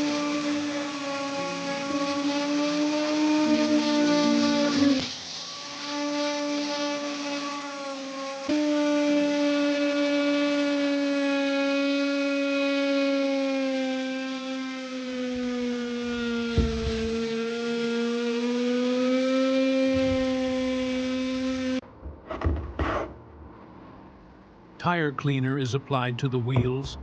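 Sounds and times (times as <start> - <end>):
small electric motor whining: 0.0 - 21.8
knock: 22.0 - 23.1.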